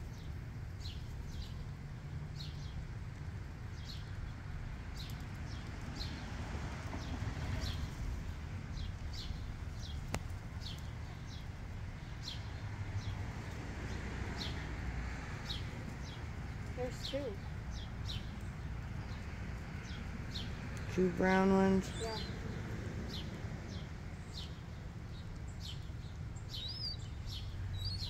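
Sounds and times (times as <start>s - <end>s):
high bird chirps: 26.5s - 28.0s.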